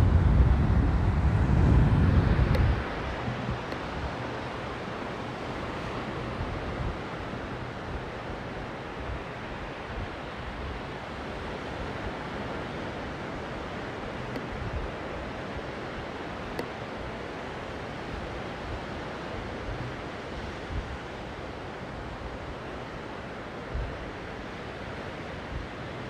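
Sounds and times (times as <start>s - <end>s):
wind on microphone: 0.0s - 16.6s, 18.0s - 21.3s
sea surf: 0.0s - 26.0s.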